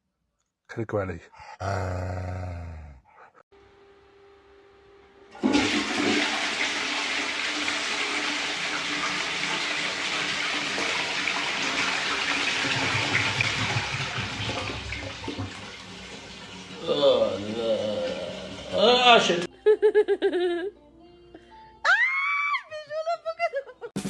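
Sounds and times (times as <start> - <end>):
water rushing: 5.4 - 19.5.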